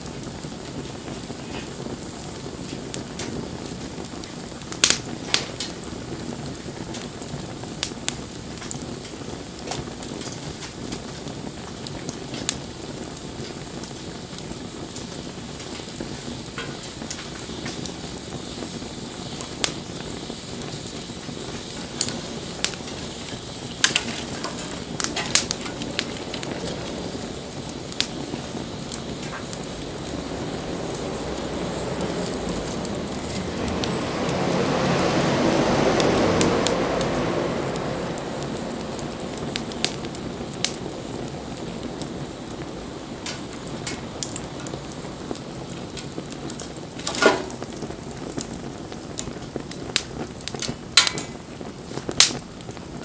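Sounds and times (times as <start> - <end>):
bonfire hissing: 0.0 - 53.0
fire crackles and pops: 0.0 - 53.0
loud rushing noise: 19.3 - 46.3.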